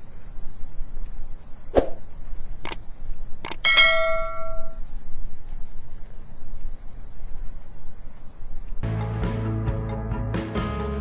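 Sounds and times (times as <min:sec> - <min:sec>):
sharp clicks: 0:02.6 - 0:04.2
bright metallic ding: 0:03.7 - 0:04.8.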